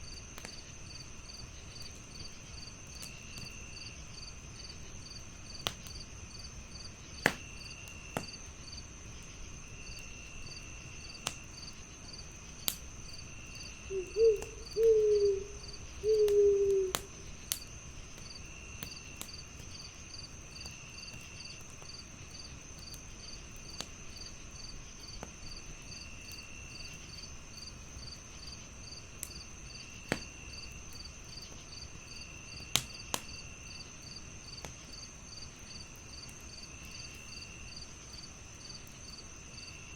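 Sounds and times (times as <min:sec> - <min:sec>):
crickets chirping: 0:00.0 - 0:39.9
wood fire crackling: 0:00.2 - 0:39.1
owl hooting: 0:13.8 - 0:17.3.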